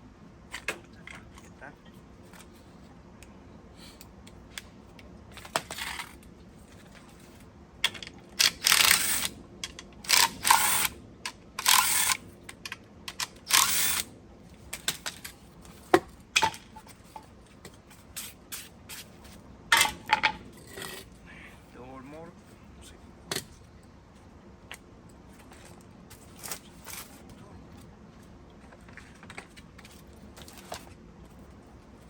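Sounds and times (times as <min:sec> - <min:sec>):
ratchet wrench rasping: 0:08.4 - 0:09.3, 0:10.1 - 0:11.0, 0:11.6 - 0:12.2, 0:13.5 - 0:14.0
ratchet clicks: 0:08.4 - 0:14.1.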